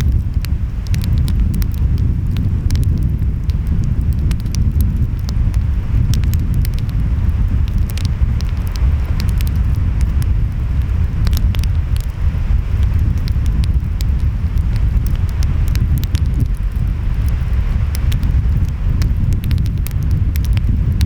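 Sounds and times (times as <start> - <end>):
wind: 0.0 - 21.0
wood fire crackling: 0.0 - 21.0.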